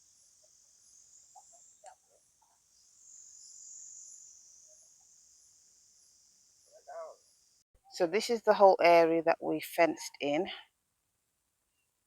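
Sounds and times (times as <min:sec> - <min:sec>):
high-pitched insect chorus: 0:00.0 - 0:07.6.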